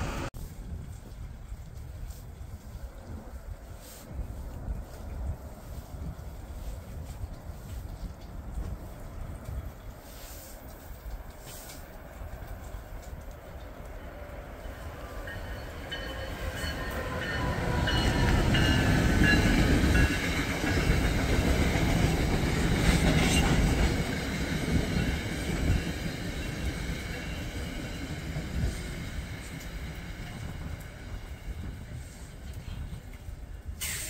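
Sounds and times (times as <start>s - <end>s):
high train whine: 0.0s - 0.6s, 10.8s - 34.0s
train wheels rumbling on rails: 0.0s - 34.0s.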